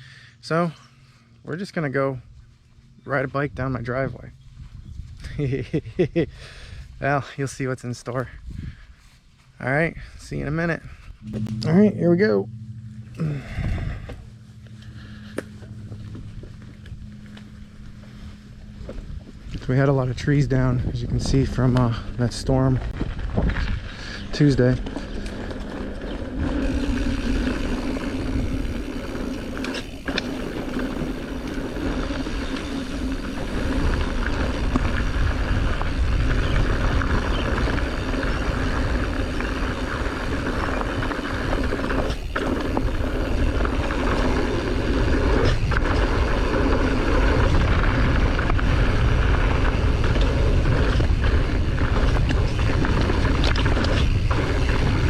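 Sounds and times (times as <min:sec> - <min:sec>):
bike tyres rumbling on dirt: 0:12.1 - 0:55.0.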